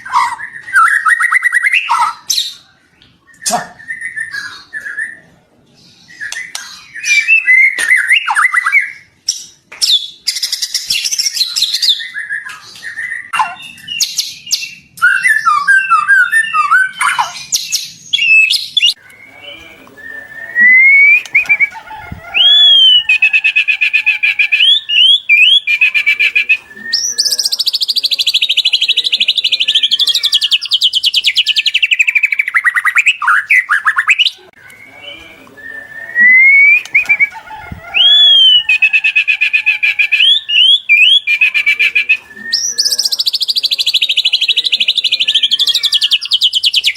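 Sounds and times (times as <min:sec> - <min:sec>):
songbird whistling and chirping: 0:00.0 - 0:05.3, 0:06.0 - 0:46.9
bird trilling: 0:18.2 - 0:46.9.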